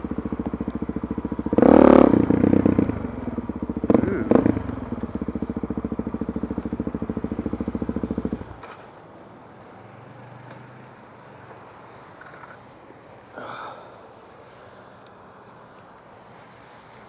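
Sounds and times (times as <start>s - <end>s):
motorcycle engine idling: 0.0s - 8.7s.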